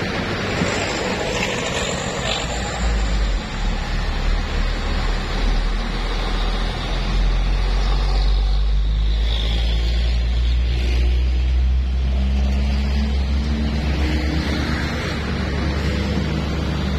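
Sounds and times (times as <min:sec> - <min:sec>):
truck engine rumbling: 0:00.0 - 0:16.9.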